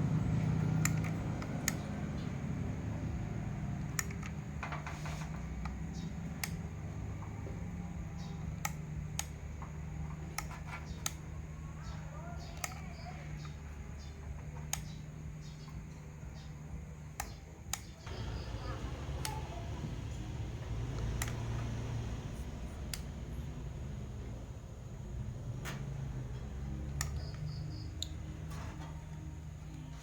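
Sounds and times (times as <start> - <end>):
steady low hum: 0.0 - 30.0
clicks and taps of small tools: 8.5 - 11.3, 26.9 - 28.8.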